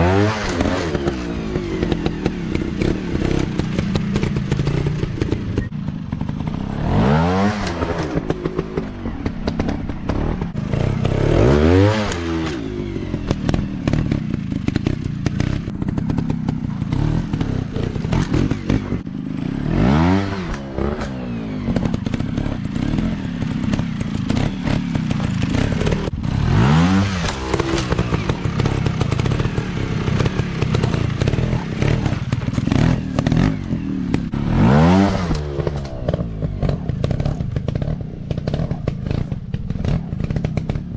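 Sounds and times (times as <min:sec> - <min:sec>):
dirt bike engines revving: 0:00.0 - 0:40.9
bikes clattering over terrain: 0:00.3 - 0:40.9.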